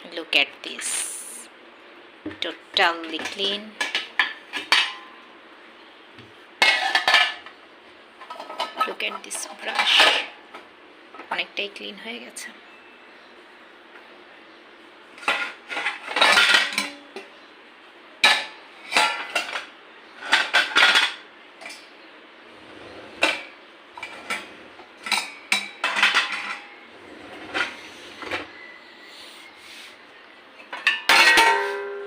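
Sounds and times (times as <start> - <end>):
dishes and cutlery clattering: 3.0 - 5.2, 6.6 - 7.5, 8.2 - 10.4, 15.2 - 17.4, 18.2 - 21.9, 22.6 - 28.6, 30.6 - 32.0.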